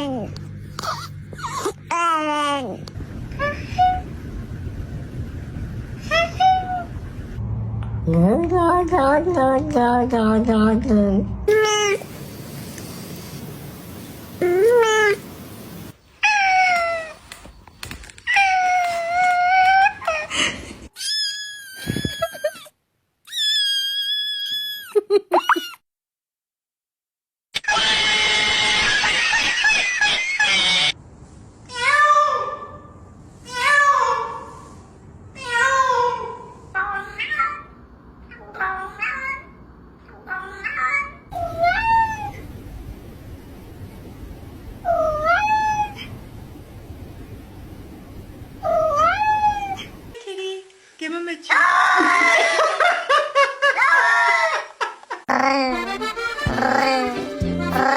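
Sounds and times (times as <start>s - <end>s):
cat yowling meow: 40.3s - 42.4s, 44.9s - 46.1s, 48.7s - 49.9s
high long animal cries: 55.3s - 57.9s.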